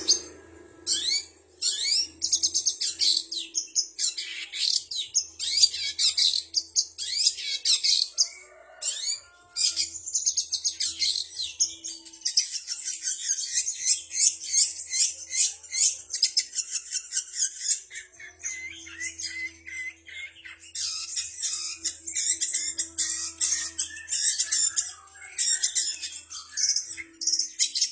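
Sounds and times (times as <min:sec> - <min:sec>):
bird chirps and trills: 0:00.0 - 0:27.9.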